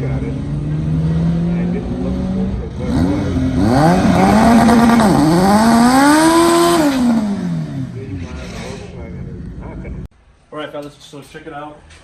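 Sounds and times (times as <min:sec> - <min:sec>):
race car engine revving: 0:00.0 - 0:09.4.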